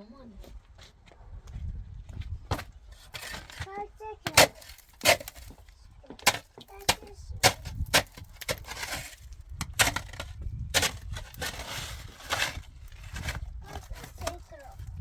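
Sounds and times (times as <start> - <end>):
rough scraping or rustling: 2.9 - 5.6, 7.4 - 15.0.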